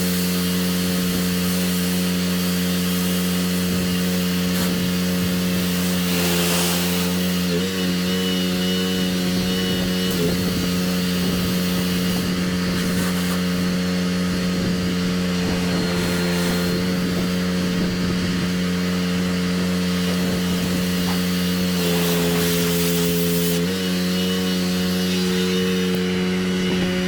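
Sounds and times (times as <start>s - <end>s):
water spray hissing: 0.0s - 7.6s, 10.1s - 13.8s, 19.9s - 26.2s
pressure washer engine running: 0.0s - 27.0s.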